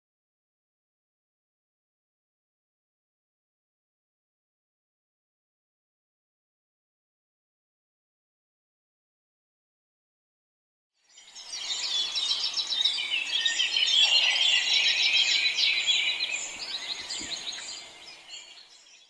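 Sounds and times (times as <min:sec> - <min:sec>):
small birds chirping chorus: 0:11.0 - 0:19.0.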